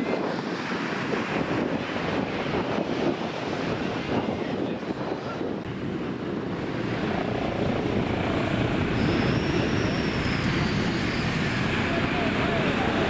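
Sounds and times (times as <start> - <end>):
engine drone: 5.6 - 13.0.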